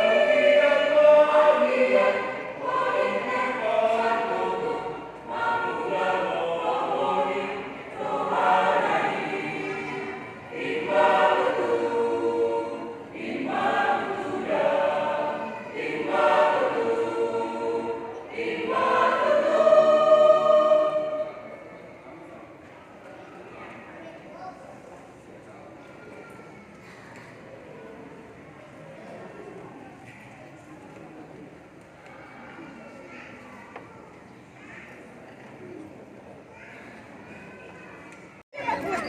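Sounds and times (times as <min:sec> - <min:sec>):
choir singing in harmony: 0:00.0 - 0:22.2.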